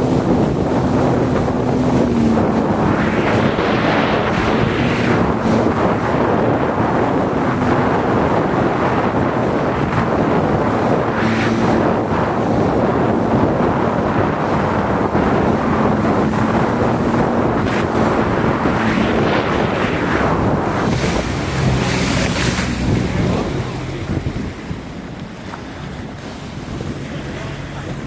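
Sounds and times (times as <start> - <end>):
jet ski engine hum: 0.0 - 28.0
water rushing past hull: 0.0 - 28.0
wind buffeting microphone: 0.0 - 28.0.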